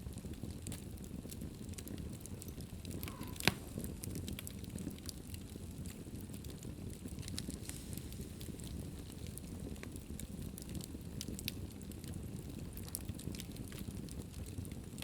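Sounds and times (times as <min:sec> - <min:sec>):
fire crackling in a fireplace: 0:00.0 - 0:15.0
low rumble of flames: 0:00.0 - 0:15.0
sharp loud fire pop: 0:03.0 - 0:03.9.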